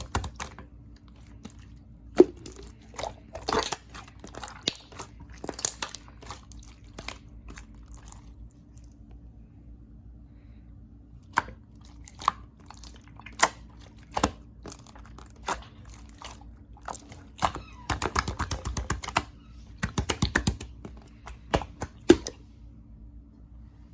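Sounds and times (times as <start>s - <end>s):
slime squeezed by hand: 0.0s - 8.4s.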